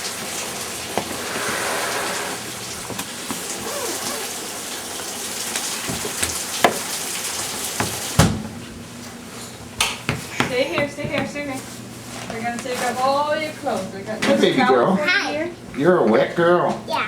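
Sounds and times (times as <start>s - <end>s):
rain pattering on surfaces: 2.4s - 8.2s.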